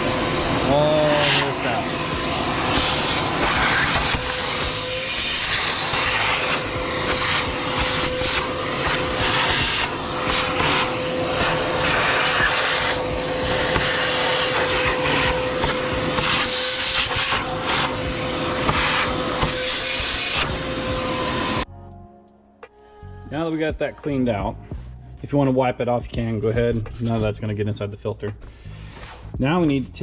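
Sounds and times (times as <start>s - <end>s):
shop vac motor whine: 0.0s - 21.7s.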